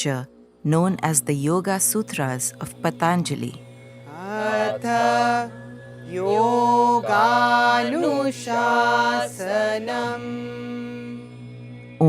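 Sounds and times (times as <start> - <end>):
steady low drone: 0.0 - 12.0
person chanting: 2.6 - 11.6.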